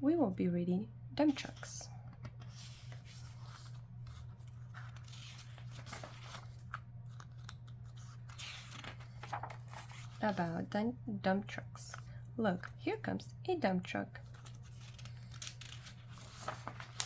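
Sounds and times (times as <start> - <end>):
steady low hum: 0.0 - 17.0
book pages rustling: 1.3 - 10.6, 14.2 - 17.0.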